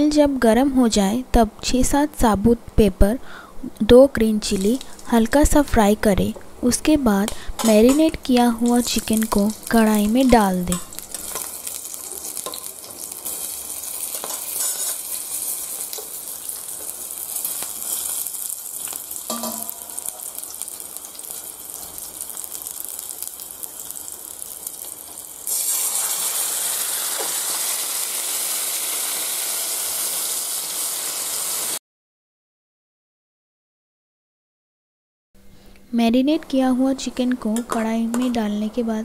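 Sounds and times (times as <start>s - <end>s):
hot oil sizzling with crackles: 4.4s - 5.6s, 6.6s - 31.8s
chicken sizzling in hot oil: 7.3s - 31.8s.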